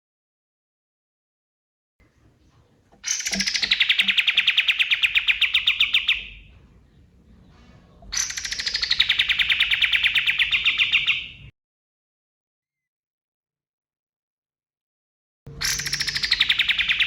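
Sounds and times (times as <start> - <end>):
bird singing rattling trills: 2.0 - 11.5, 15.5 - 17.0.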